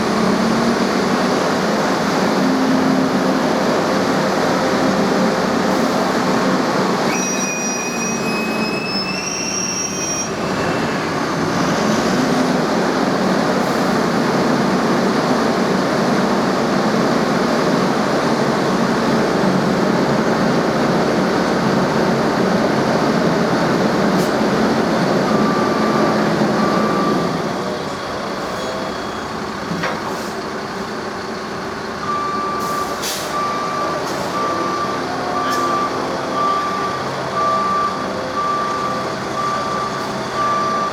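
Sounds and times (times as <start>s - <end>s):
heavy vehicle engine running: 0.0s - 9.2s, 10.2s - 40.9s
high whistle-like squeal: 7.0s - 11.0s
reversing alarm beeping: 7.1s - 10.5s, 24.9s - 27.5s, 32.0s - 40.9s.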